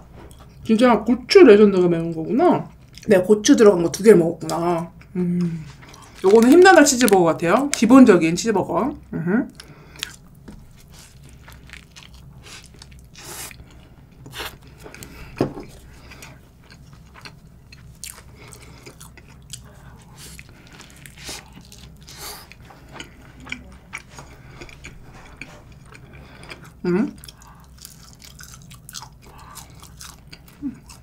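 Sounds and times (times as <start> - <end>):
person chewing a burger: 9.5 - 31.0.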